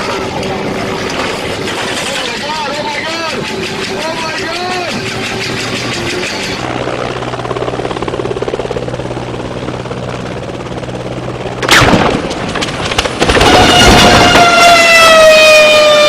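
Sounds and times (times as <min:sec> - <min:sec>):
helicopter rotor chop: 0:00.0 - 0:16.0
sharp bangs: 0:11.6 - 0:15.4.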